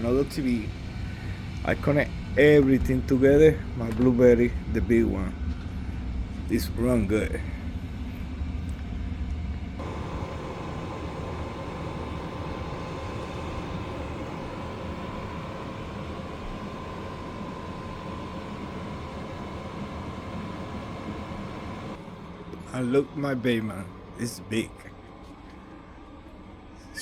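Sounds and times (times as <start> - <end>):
faint steady whine: 0.0 - 27.0
fan whirring with low rumble: 0.0 - 27.0.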